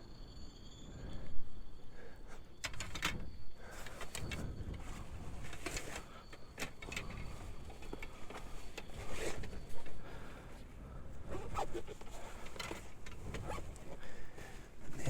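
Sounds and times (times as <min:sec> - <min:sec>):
metal parts clicking and knocking: 0:02.6 - 0:03.2.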